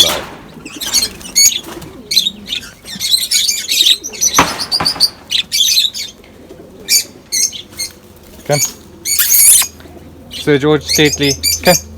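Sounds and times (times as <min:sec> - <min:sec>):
lovebirds chirping: 0:00.0 - 0:11.9.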